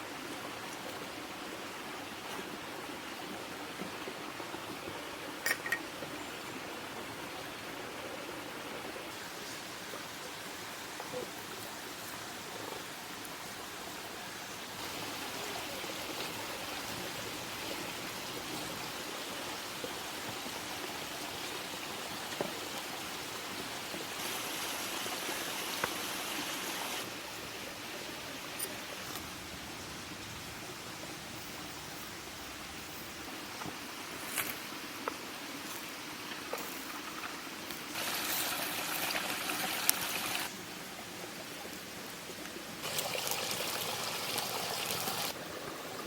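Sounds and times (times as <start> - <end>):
wood fire hissing and crackling: 9.1 - 32.0, 32.8 - 45.4.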